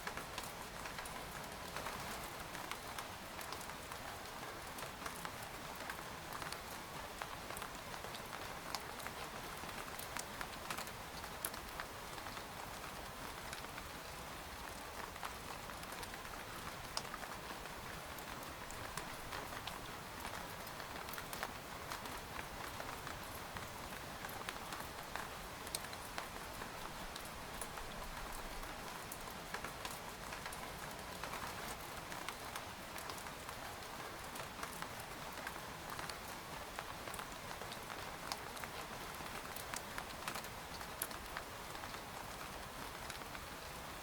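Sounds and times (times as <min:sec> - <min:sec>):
rain hissing on a tent: 0:00.0 - 0:44.0.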